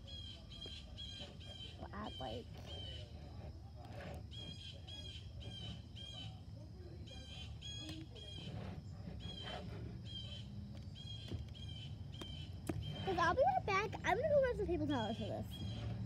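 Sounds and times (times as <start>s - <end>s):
bird calling: 0.0s - 3.1s.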